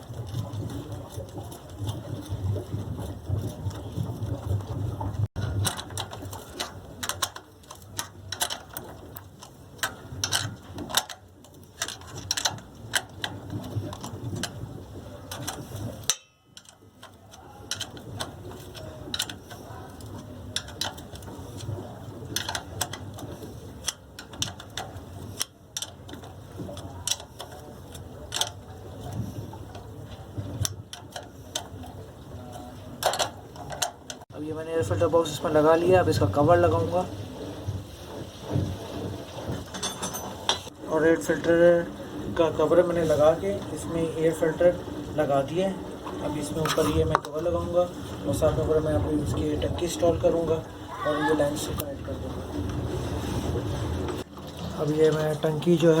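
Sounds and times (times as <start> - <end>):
hand tools and metal parts clinking: 5.4 - 14.6, 15.2 - 34.3, 38.5 - 40.8.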